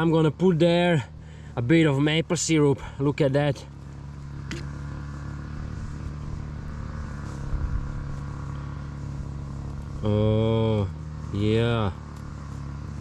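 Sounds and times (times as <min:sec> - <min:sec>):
lawnmower engine running: 0:00.0 - 0:13.0
soft rustles: 0:03.9 - 0:10.0.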